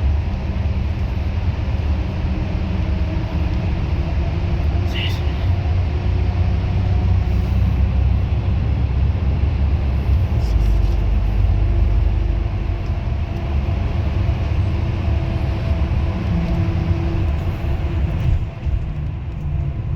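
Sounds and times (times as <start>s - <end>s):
bus engine drone: 0.0s - 19.9s
road noise: 0.0s - 19.9s.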